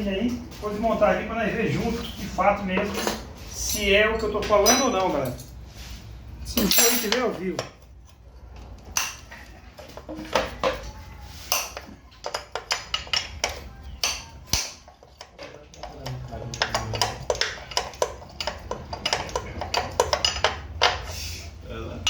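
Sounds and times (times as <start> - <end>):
metal tools and parts clinking: 2.8 - 5.6, 6.5 - 7.8.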